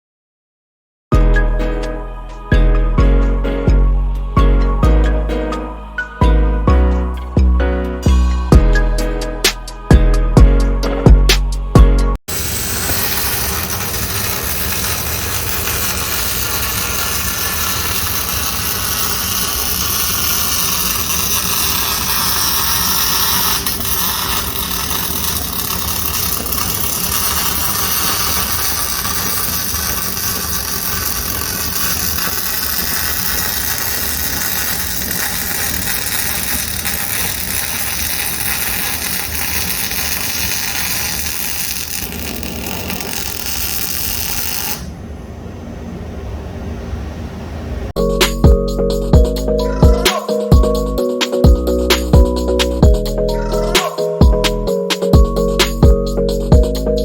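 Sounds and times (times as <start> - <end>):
welding arc: 12.3 - 44.9.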